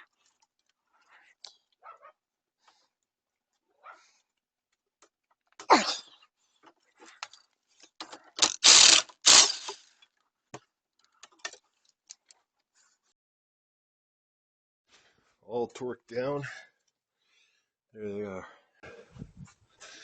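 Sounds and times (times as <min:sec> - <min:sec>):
harsh bursts: 0:08.4 - 0:09.8
ratchet clicks: 0:08.4 - 0:09.8.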